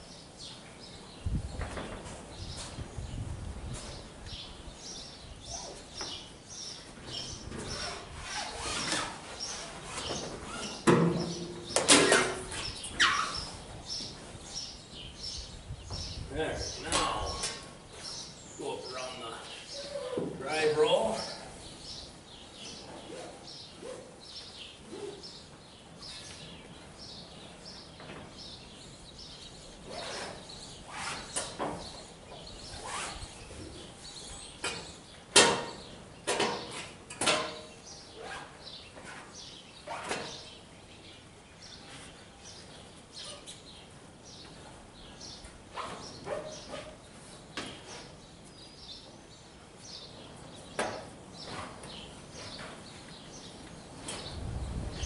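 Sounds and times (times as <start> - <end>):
birds chirping: 0.0 - 55.0
knocks and clunks at hay baler: 10.2 - 12.8, 34.6 - 37.8.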